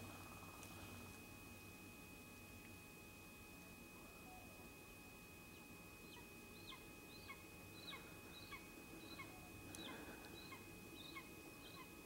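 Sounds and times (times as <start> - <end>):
faint corvid calls: 5.5 - 12.0.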